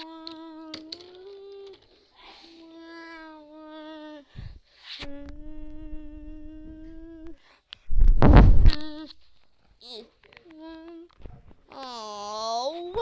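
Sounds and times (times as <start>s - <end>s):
person humming held notes: 0.0s - 7.4s.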